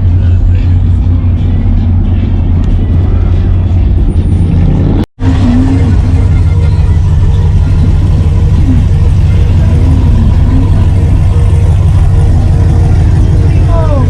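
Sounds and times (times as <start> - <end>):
vehicle engine idling: 0.0 - 14.0
faint voices: 5.2 - 14.0.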